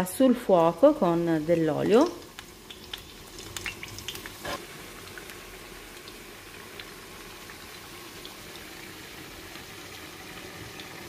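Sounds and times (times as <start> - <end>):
food sizzling in hot oil: 0.0 - 11.0
oil crackling: 0.8 - 8.9.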